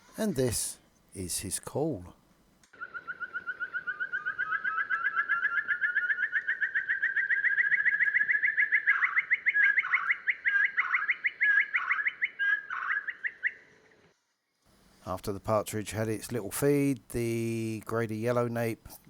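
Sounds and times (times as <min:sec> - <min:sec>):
partridge calling rapid notes: 0:02.8 - 0:13.6
lower sweeping bird notes: 0:02.8 - 0:14.0.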